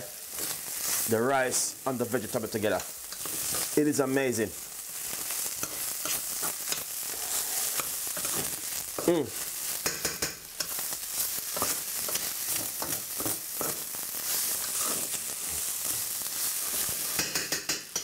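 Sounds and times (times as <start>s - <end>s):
food sizzling in a pan: 0.0s - 18.0s
metal utensil scraping a pan: 3.1s - 3.8s, 5.6s - 8.6s, 11.5s - 15.6s.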